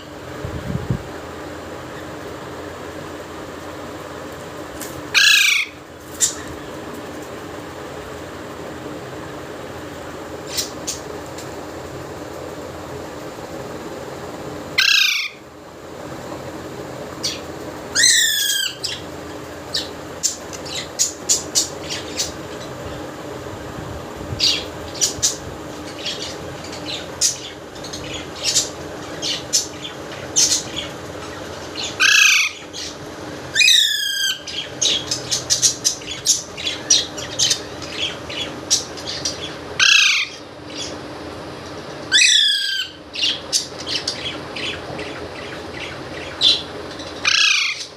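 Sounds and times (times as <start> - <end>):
steady low hum: 0.0 - 47.9
parrot screeching: 5.1 - 5.8, 14.8 - 15.4, 18.0 - 19.0, 31.8 - 32.6, 33.6 - 34.5, 39.8 - 40.4, 42.1 - 43.0, 47.2 - 47.9.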